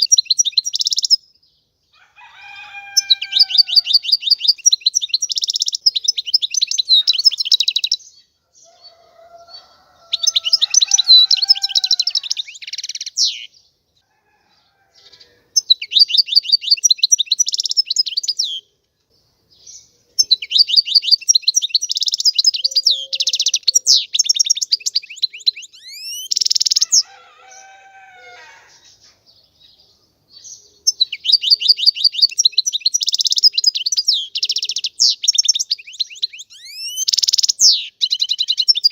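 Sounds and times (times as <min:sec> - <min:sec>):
goldfinch twittering song: 0:00.0 - 0:01.2, 0:02.8 - 0:08.2, 0:15.6 - 0:18.7, 0:19.7 - 0:27.0, 0:30.4 - 0:38.9.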